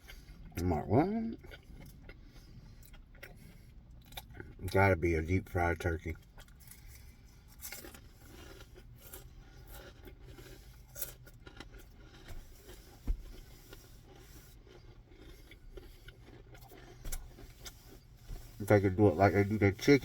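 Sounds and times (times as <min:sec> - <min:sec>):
quiet chewing: 0:00.0 - 0:05.0, 0:06.0 - 0:20.0
utensil scraping food container: 0:17.2 - 0:20.0.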